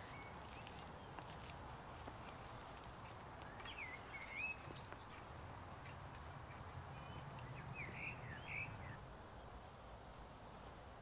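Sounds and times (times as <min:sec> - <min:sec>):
songbird whistling: 0:07.0 - 0:09.0.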